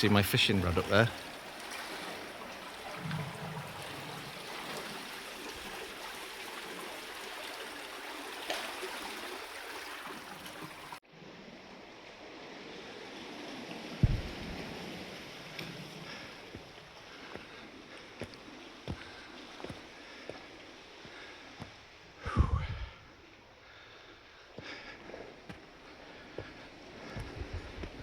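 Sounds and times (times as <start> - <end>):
sea water washing among rocks: 0.0 - 11.0, 12.8 - 21.5.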